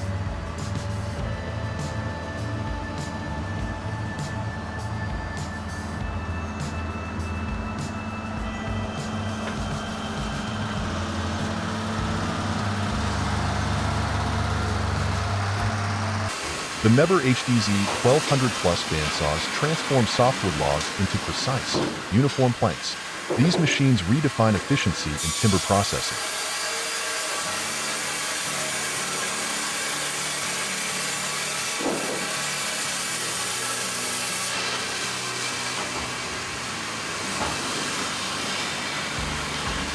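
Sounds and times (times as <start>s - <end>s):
heavy machinery engine running: 0.0s - 26.0s, 34.6s - 39.9s
band saw cutting log: 7.8s - 39.9s.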